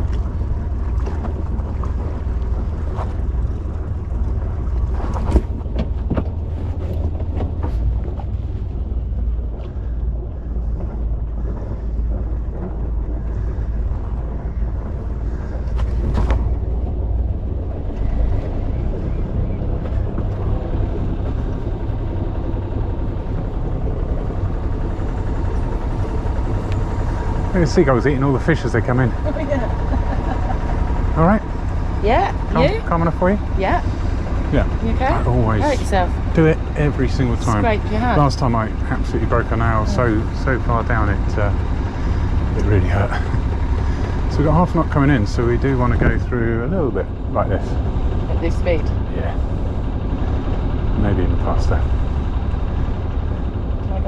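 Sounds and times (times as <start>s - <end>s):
boat engine running: 0.0s - 54.0s
wind buffeting microphone: 0.0s - 54.0s.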